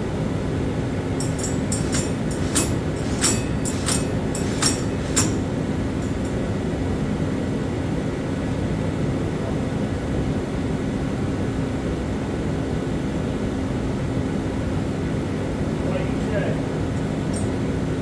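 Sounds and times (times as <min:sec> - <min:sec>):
mechanical drone: 0:01.2 - 0:05.6.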